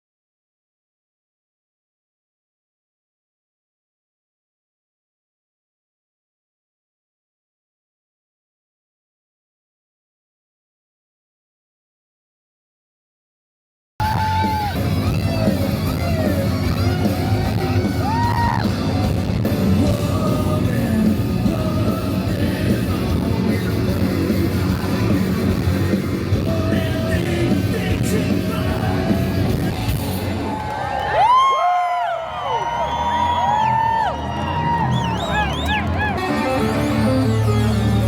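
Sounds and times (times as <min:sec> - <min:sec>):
live rock band with singing: 0:14.0 - 0:30.6
crowd yelling and whooping: 0:14.0 - 0:38.0.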